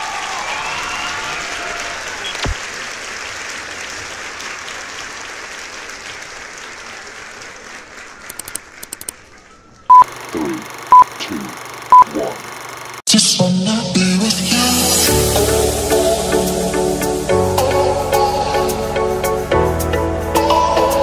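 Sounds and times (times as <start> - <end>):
crowd applause and cheering: 0.0 - 9.8.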